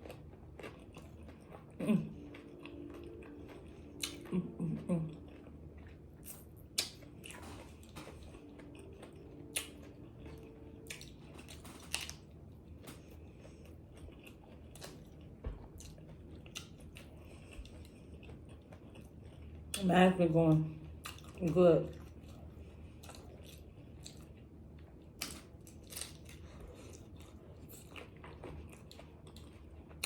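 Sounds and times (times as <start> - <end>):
crunchy biting and chewing: 0.0 - 19.8, 21.0 - 30.0.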